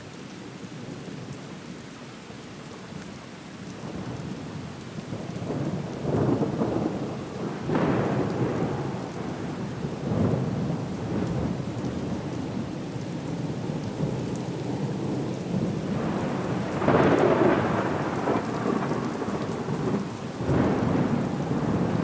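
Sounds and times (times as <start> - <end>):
steady rain: 0.0 - 22.0
rolling thunder: 5.4 - 12.3, 15.5 - 22.0.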